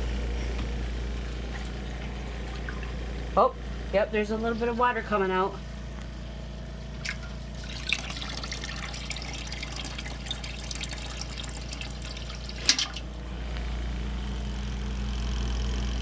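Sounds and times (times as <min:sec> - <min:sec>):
spin dryer motor hum: 0:00.0 - 0:16.0
water trickling: 0:07.0 - 0:13.1.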